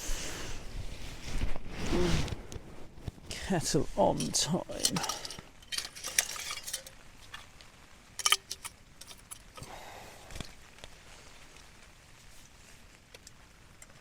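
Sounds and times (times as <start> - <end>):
metal cookware clinking: 4.2 - 7.4, 8.2 - 9.6.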